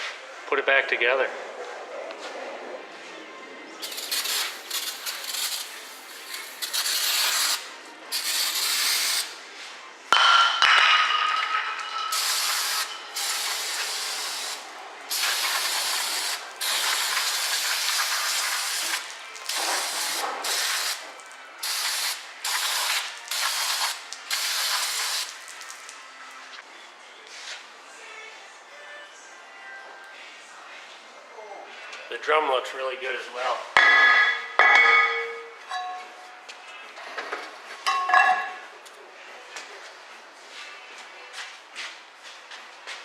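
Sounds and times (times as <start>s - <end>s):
aerosol spray hissing: 3.8s - 5.7s, 12.2s - 21.0s.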